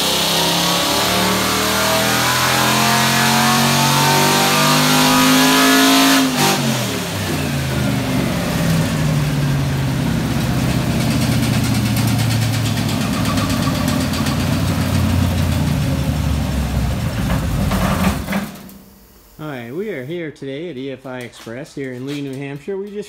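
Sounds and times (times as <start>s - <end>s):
engine idling: 7.0s - 18.6s.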